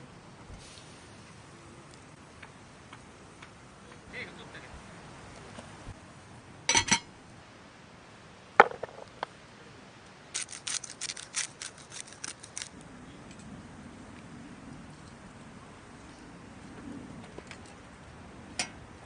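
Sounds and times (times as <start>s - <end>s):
hard knock: 8.6s - 9.3s.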